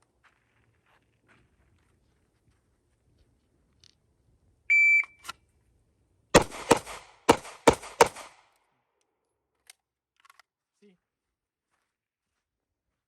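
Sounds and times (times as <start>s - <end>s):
shot timer beep: 4.7s - 5.2s
handgun shots: 6.4s - 8.4s.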